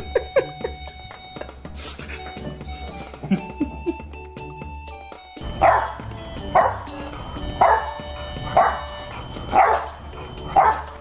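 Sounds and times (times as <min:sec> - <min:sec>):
background music: 0:00.0 - 0:11.0
dog barking: 0:05.6 - 0:06.0, 0:06.6 - 0:06.9, 0:07.6 - 0:11.0.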